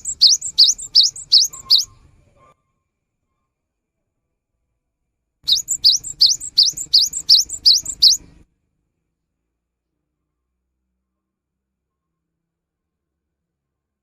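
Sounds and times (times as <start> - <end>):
bird calling sharp rising notes: 0.0 - 2.0, 5.5 - 8.4.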